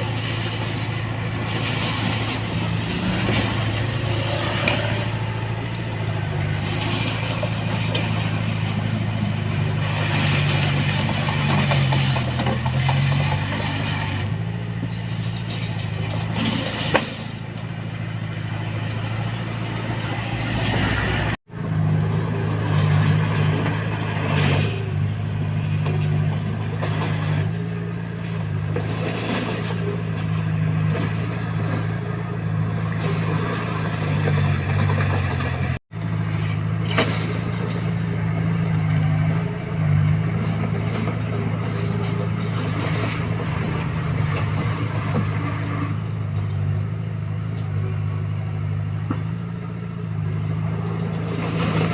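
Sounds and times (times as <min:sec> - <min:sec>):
bulldozer diesel engine running: 0:00.0 - 0:51.9
machine knocks and clanks: 0:06.2 - 0:14.0.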